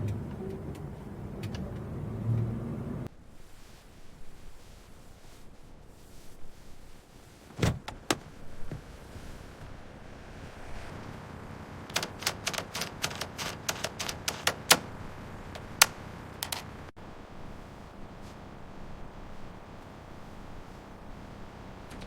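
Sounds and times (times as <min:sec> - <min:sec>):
sharp clicks and knocks: 0:11.9 - 0:14.9, 0:15.6 - 0:16.9
low steady hum: 0:14.2 - 0:22.0.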